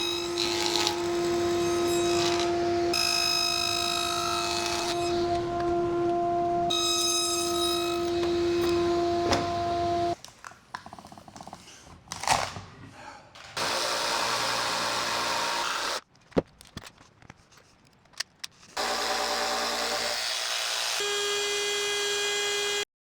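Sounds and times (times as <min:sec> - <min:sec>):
power tool motor whining: 0:18.8 - 0:22.8.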